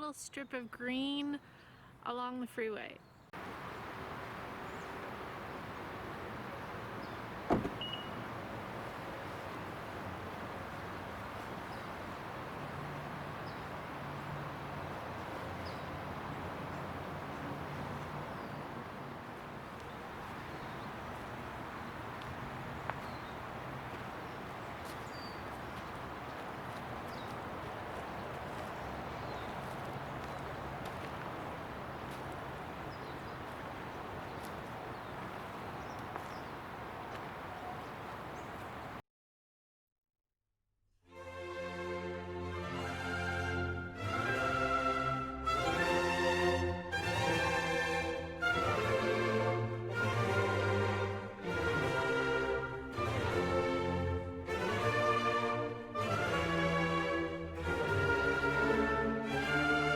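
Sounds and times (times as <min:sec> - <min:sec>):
small bird calling: 0:03.0 - 0:39.0
freeway traffic roar: 0:03.4 - 0:39.0
faint bird chirps: 0:06.9 - 0:08.3, 0:31.6 - 0:39.0.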